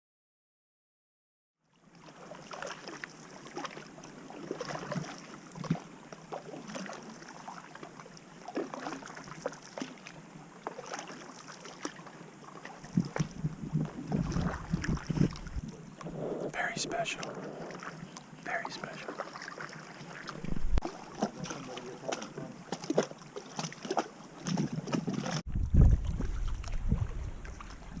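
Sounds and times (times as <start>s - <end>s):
water splashing against canoe: 1.9s - 28.0s
wind buffeting microphone: 12.9s - 16.6s, 20.4s - 20.8s, 24.5s - 28.0s.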